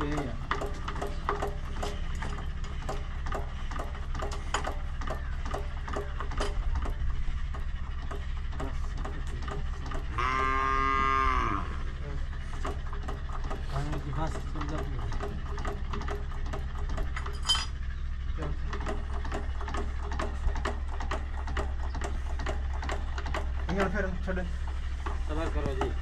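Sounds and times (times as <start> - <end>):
low machine hum: 0.0 - 26.0
cow mooing: 10.2 - 12.0.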